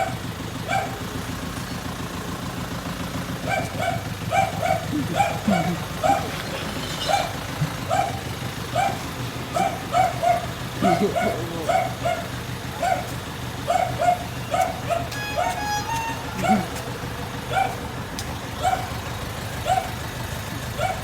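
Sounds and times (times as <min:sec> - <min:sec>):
dog barking: 0:00.0 - 0:01.2, 0:03.4 - 0:16.8, 0:17.5 - 0:17.9, 0:18.6 - 0:19.0, 0:19.6 - 0:20.0, 0:20.7 - 0:21.0
garbage truck engine idling: 0:00.0 - 0:21.0.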